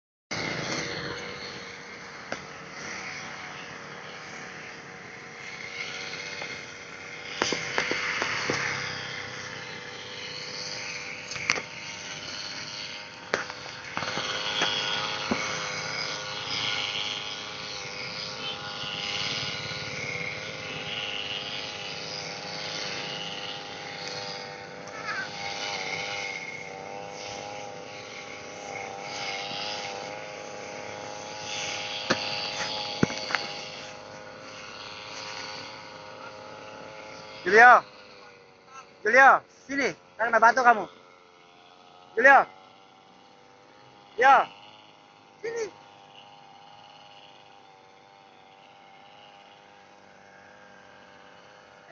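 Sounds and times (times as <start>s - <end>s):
brush cutter running: 0.3s - 51.9s
line hitting grass and stones: 7.3s - 8.7s, 31.9s - 33.7s.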